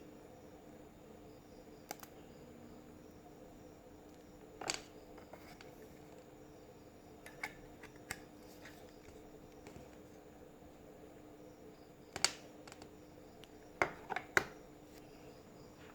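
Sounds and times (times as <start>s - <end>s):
faint steady hum: 0.0s - 15.9s
plastic charger clicks and taps: 13.8s - 14.6s.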